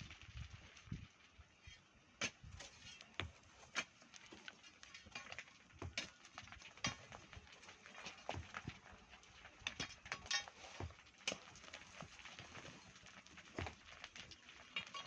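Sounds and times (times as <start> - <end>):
hand tools striking sand and stone: 2.2 - 8.9, 9.6 - 14.2.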